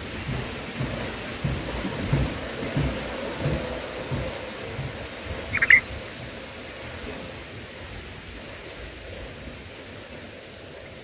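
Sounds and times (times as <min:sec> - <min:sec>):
outdoor hiss: 0:00.0 - 0:11.0
bulbul chirps: 0:05.6 - 0:05.8.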